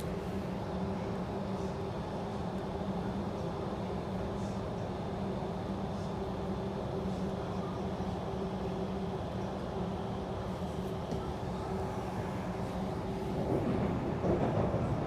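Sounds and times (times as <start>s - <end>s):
train carriage rumble: 9.0s - 15.0s.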